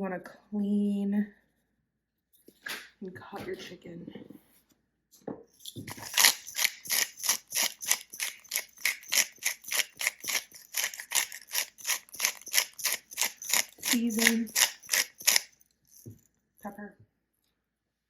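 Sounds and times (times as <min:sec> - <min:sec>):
knife cutting on cutting board: 0:05.8 - 0:15.5.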